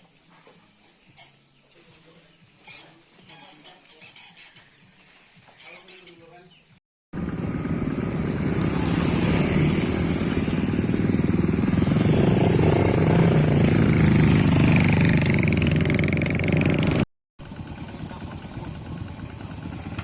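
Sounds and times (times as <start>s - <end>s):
motorcycle engine running: 7.2s - 20.0s.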